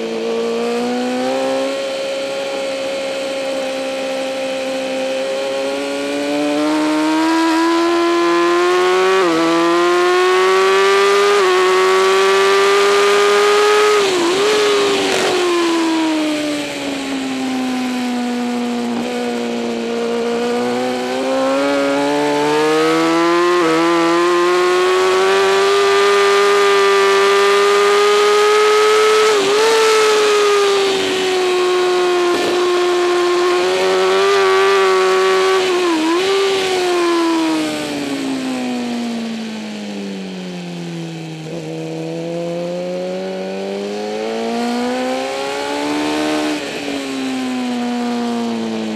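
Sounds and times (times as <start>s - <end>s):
sportbike engine at racing speed: 0.0s - 48.9s.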